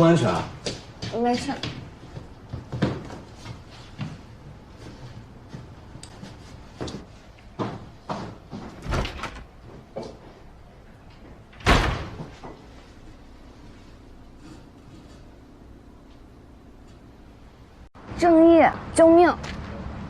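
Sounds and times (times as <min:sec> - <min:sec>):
door shutting: 0:08.7 - 0:09.5, 0:11.5 - 0:12.5.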